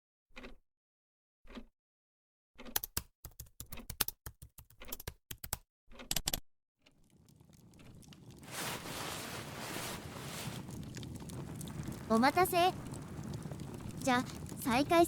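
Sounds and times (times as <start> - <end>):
keyboard typing: 2.6 - 6.4.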